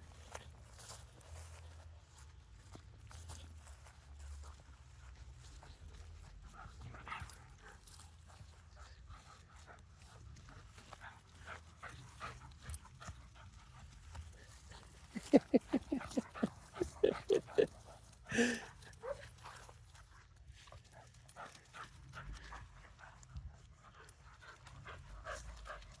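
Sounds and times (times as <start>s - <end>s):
faint footsteps: 0.1s - 26.0s
dog panting: 4.4s - 26.0s
dog vocal sound: 15.2s - 17.7s.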